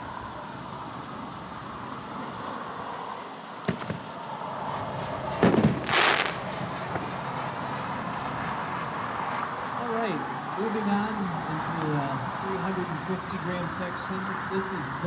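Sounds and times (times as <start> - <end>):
wind: 0.0 - 15.0
firework shell crack: 3.6 - 4.1, 4.7 - 9.0
firework booms: 5.3 - 7.3.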